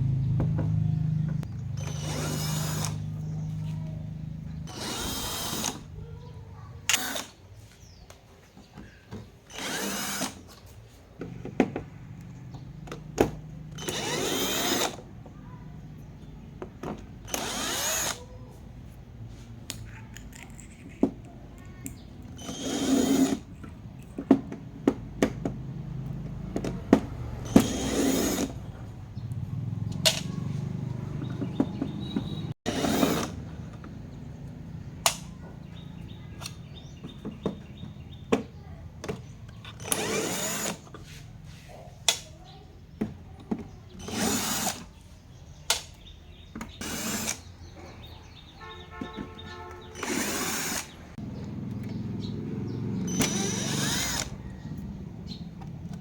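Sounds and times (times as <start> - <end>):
power screwdriver running: 1.5 - 3.5, 4.6 - 6.0, 6.8 - 7.4, 9.5 - 10.6, 13.7 - 15.1, 17.2 - 18.3, 22.3 - 23.5, 27.4 - 28.6, 32.0 - 33.5, 39.6 - 41.0, 43.9 - 44.9, 46.7 - 47.5, 49.7 - 51.9, 53.0 - 54.8
clicks and handling noise: 19.2 - 22.6, 23.2 - 45.0.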